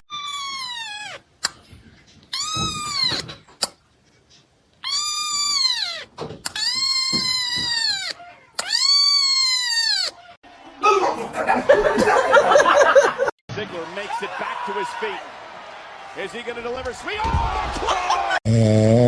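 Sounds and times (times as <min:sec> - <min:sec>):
cat meowing: 0:00.0 - 0:01.3, 0:02.3 - 0:03.4, 0:04.8 - 0:10.4.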